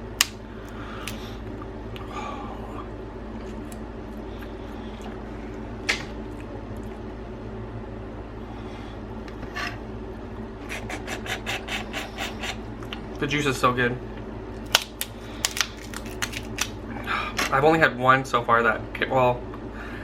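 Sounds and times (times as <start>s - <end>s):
steady low hum: 0.0s - 20.0s
sucking and chewing: 3.4s - 7.1s, 14.6s - 16.8s
crab shell cracking: 14.6s - 16.8s.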